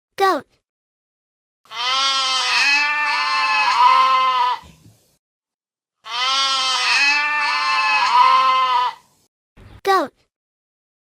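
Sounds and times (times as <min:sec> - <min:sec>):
goat bleating: 0:01.7 - 0:04.8, 0:06.0 - 0:09.0.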